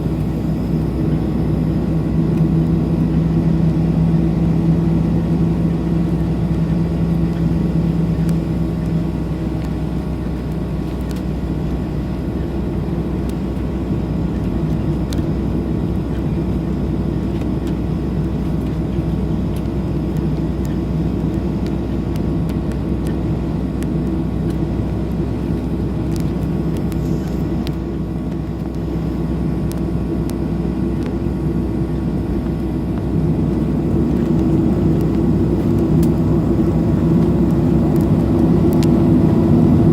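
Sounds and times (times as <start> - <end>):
jet engines humming in cabin: 0.0 - 39.9.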